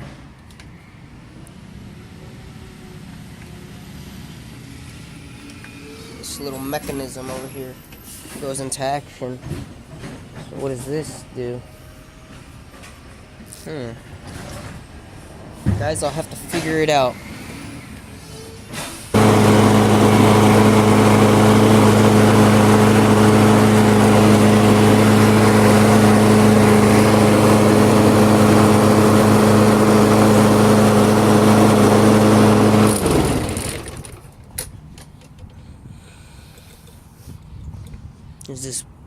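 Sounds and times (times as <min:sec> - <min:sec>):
lawn mower engine running: 0:19.1 - 0:34.6.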